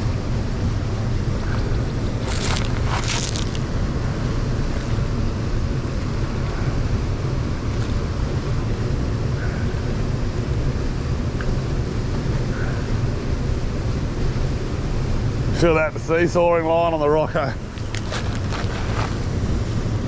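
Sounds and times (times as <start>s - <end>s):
rushing river water: 1.4s - 5.2s.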